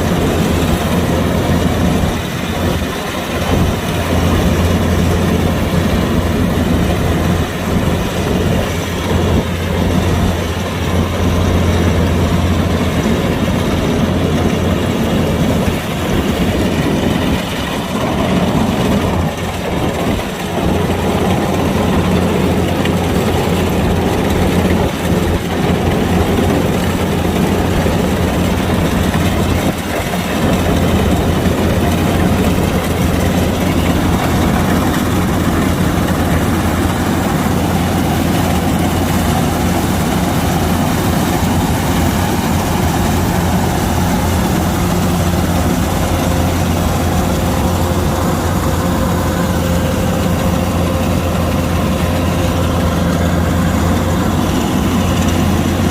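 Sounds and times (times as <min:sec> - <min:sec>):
combine harvester engine running: 0:00.0 - 0:55.9.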